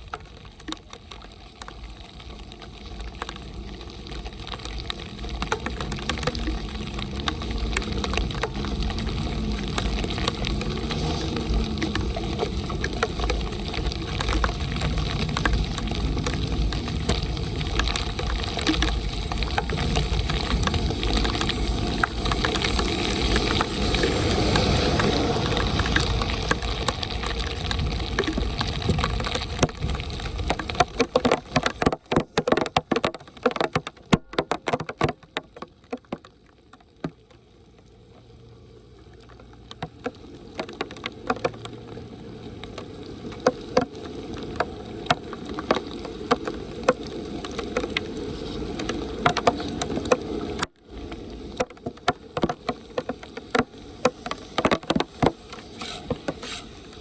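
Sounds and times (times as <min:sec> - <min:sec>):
heavy rain: 0:00.0 - 0:57.0
running water: 0:00.0 - 0:57.0
sharp knocks and clatter: 0:30.8 - 0:36.2.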